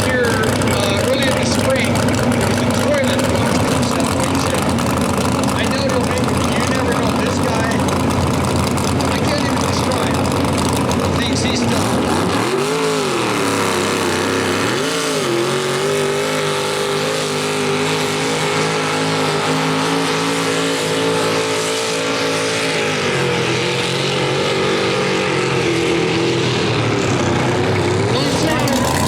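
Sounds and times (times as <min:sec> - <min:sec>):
tractor engine at high revs: 0:00.0 - 0:29.0.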